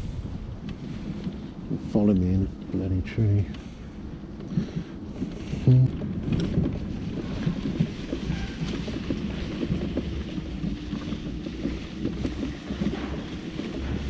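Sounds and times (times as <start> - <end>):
wind on the microphone: 0.0 - 14.0
rattles and knocks over ground: 0.6 - 14.0
mobility scooter motor hum: 3.5 - 14.0.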